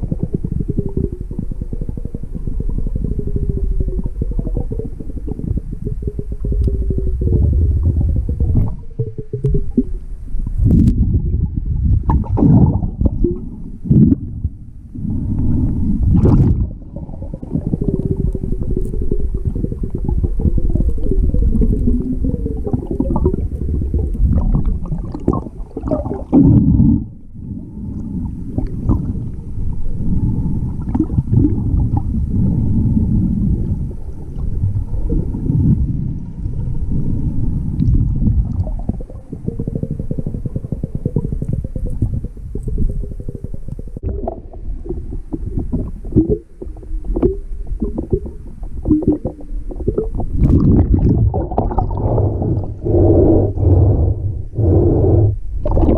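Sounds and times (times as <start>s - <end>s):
underwater sloshing rumble: 0.0s - 55.9s.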